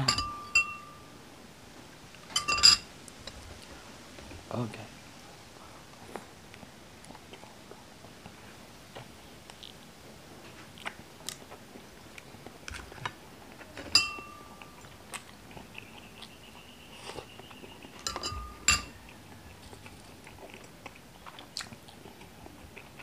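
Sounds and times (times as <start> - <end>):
metal spoon clinking dish: 0.0 - 1.0, 2.3 - 2.9, 13.8 - 14.5, 18.0 - 19.0
chewing: 5.9 - 23.0.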